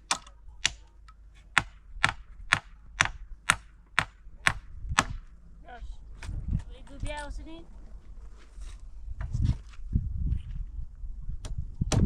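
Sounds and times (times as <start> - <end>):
sharp knocks: 0.0 - 5.3.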